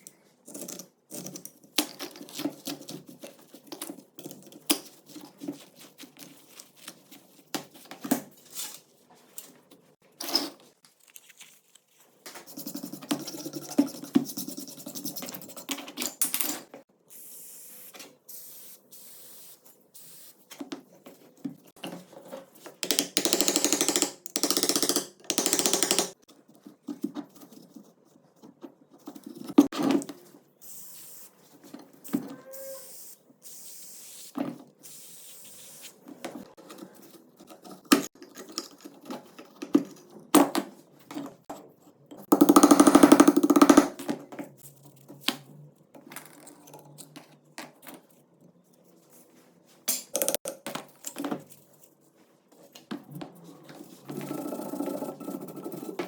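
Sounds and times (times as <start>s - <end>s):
metal parts clicking and knocking: 22.8s - 26.2s, 49.9s - 51.3s.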